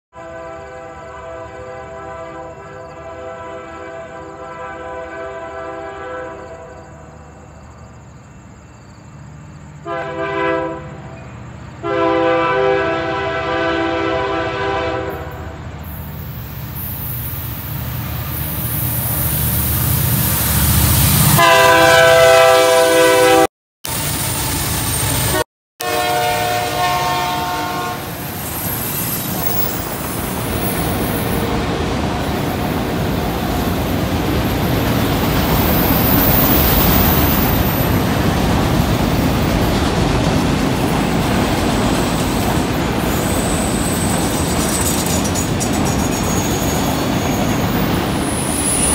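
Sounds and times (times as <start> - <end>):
train horn chord: 0.1 - 6.7, 9.8 - 15.6, 21.2 - 23.5, 25.3 - 28.1
rail cars rolling past: 0.2 - 48.9.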